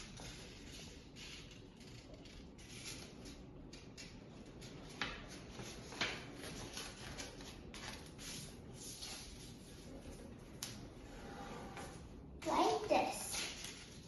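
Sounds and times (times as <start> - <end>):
paper rustling: 4.6 - 10.8, 12.7 - 14.0.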